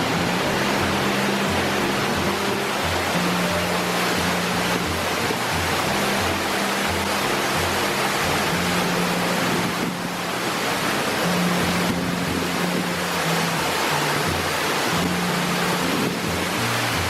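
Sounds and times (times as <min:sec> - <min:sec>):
background music with pulsing bass: 0:00.0 - 0:17.0
waterfall roaring: 0:00.0 - 0:17.0.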